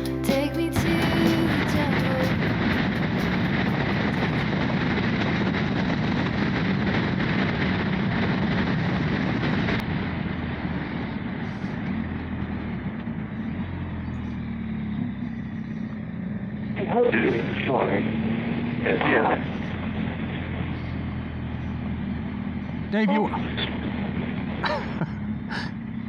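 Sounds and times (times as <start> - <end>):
wind rushing: 0.8 - 12.5
motorcycle engine: 9.3 - 26.0.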